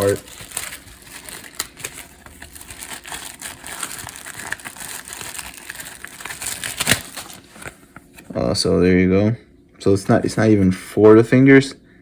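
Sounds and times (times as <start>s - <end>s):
paper crinkling and rustling: 0.0s - 8.4s.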